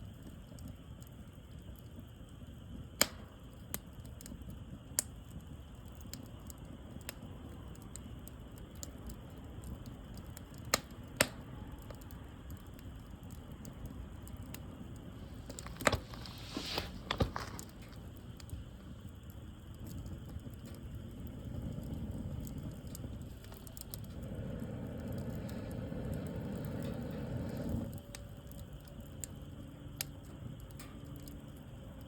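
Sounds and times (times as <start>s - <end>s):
fire crackles and pops: 0.0s - 32.0s
wood fire rushing: 12.7s - 29.0s.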